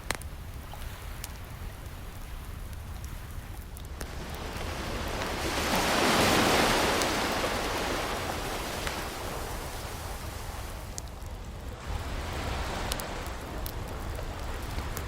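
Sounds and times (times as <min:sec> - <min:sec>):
fireplace crackles: 0:00.0 - 0:15.0
low rumble of sea: 0:00.0 - 0:15.0
ocean wave breaking: 0:04.1 - 0:10.9, 0:11.8 - 0:13.6.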